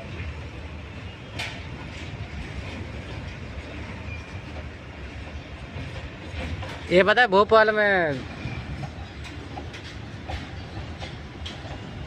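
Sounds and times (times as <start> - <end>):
train rumbling on track: 0.0 - 12.0
clanking and clicking: 8.1 - 12.0.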